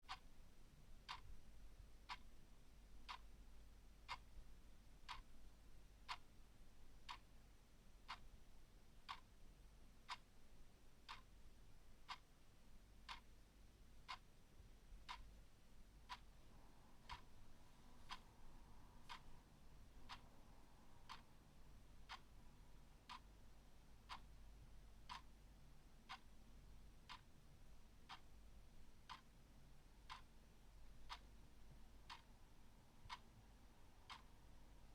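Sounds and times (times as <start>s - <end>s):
clock ticking faintly: 0.0s - 34.9s.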